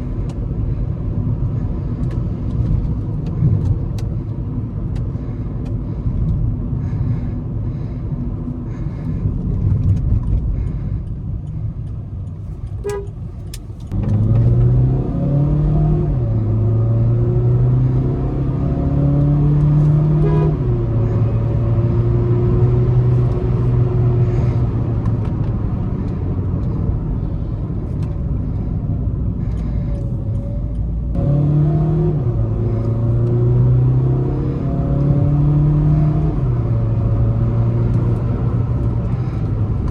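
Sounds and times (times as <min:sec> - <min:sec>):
diesel car engine accelerating: 0:00.0 - 0:39.9.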